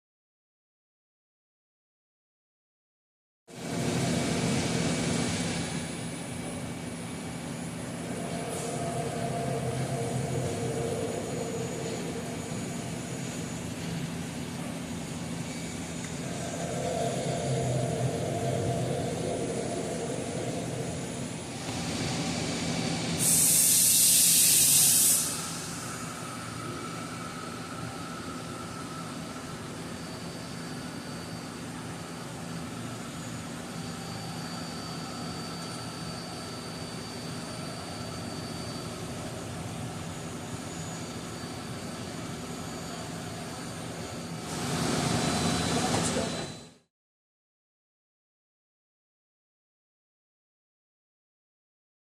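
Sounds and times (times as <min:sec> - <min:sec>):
machine humming: 0:03.6 - 0:23.7
faint steady tones: 0:07.0 - 0:22.0
hissing spray bursts: 0:23.2 - 0:26.0.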